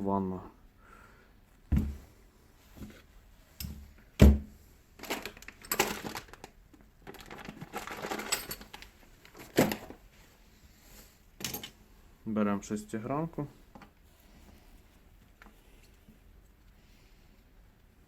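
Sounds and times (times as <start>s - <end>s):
rummaging and scraping: 5.0s - 10.4s
metal tools clattering on workbench: 7.8s - 8.8s, 11.4s - 11.8s.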